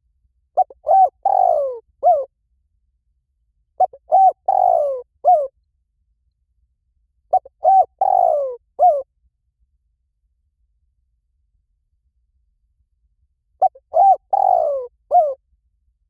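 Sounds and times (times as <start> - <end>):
dove cooing: 0.6 - 2.3, 3.8 - 5.5, 7.3 - 9.1, 13.6 - 15.4.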